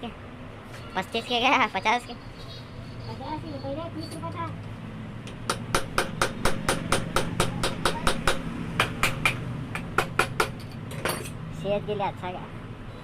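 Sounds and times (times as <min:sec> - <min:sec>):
rapid hammer strikes: 0:05.3 - 0:10.7.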